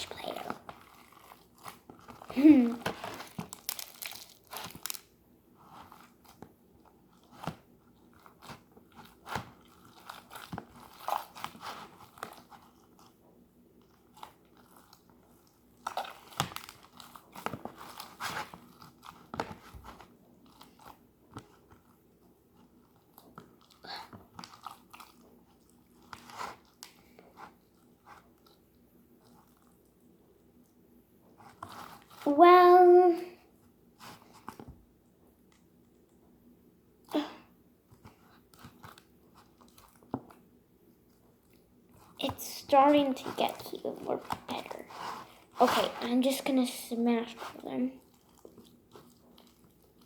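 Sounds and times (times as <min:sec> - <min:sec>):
hands squishing slime: 0:00.0 - 0:13.1, 0:13.8 - 0:29.7, 0:37.9 - 0:50.0.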